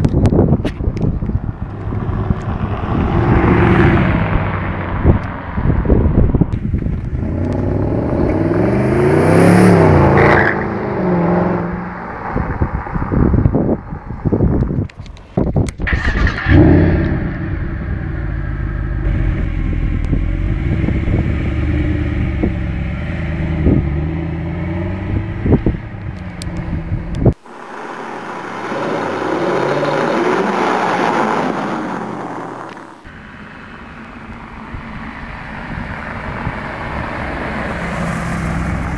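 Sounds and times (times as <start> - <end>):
car engine revving: 6.6 - 13.4, 15.8 - 38.9
rushing noise: 15.7 - 23.4, 27.0 - 35.1.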